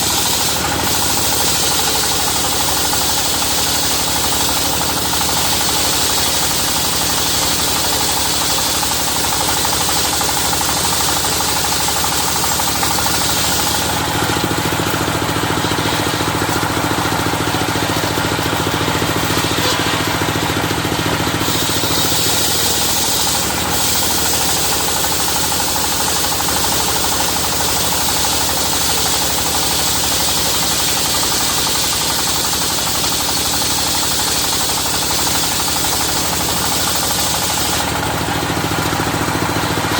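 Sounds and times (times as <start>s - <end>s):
rapid knocking engine beat: 0.0s - 39.9s
saw blade cutting hum: 0.0s - 39.9s
sawmill running: 0.0s - 39.9s.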